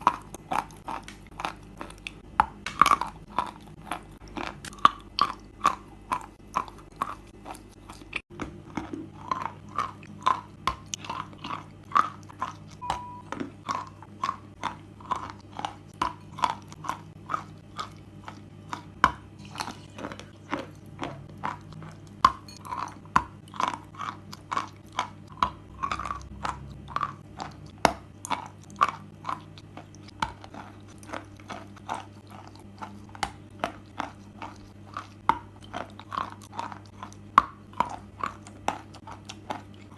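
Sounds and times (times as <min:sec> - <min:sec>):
person chewing chalk: 0:00.0 - 0:39.9.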